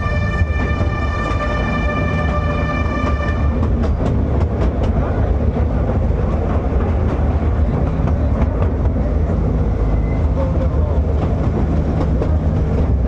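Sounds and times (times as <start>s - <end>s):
ride train rumbling: 0.0s - 13.0s
wheels clicking over rail joints: 3.1s - 9.4s, 10.6s - 13.0s.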